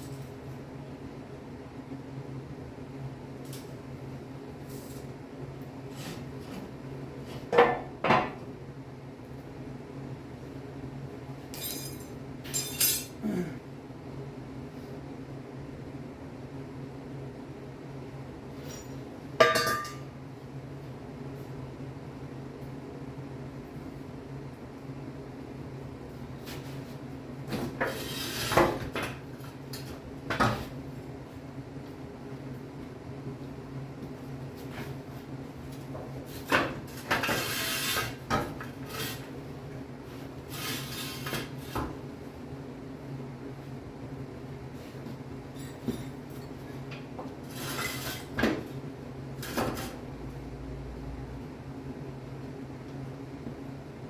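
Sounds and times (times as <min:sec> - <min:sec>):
metal tools clanking: 0:11.5 - 0:13.2, 0:18.7 - 0:20.0.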